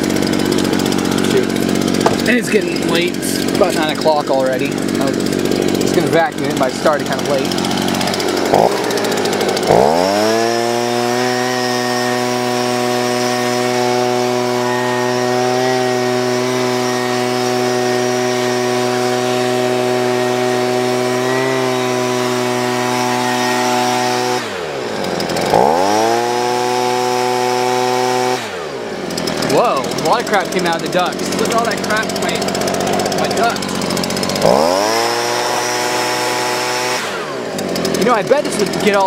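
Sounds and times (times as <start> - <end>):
electric blower whine: 0.0 - 39.0.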